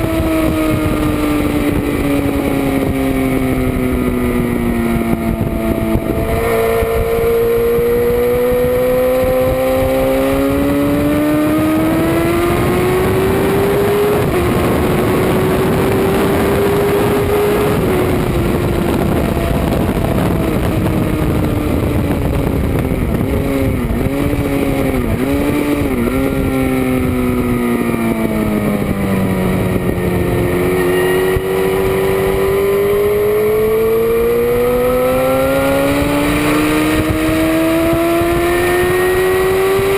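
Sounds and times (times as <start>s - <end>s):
motorcycle engine racing: 0.0s - 39.9s
wind rush: 0.0s - 39.9s.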